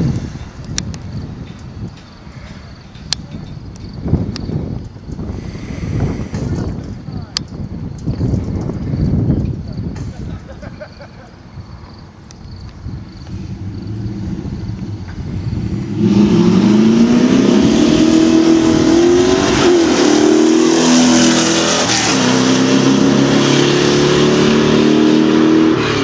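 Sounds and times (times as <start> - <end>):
cars accelerating hard: 13.2 - 26.0.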